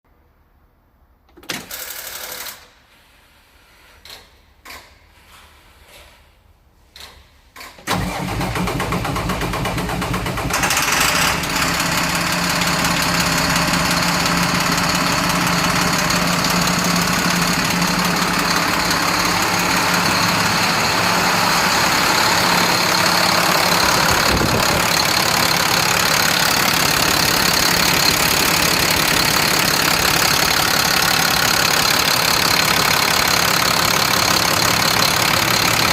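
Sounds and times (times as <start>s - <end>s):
diesel engine starting and idling: 7.8s - 35.9s.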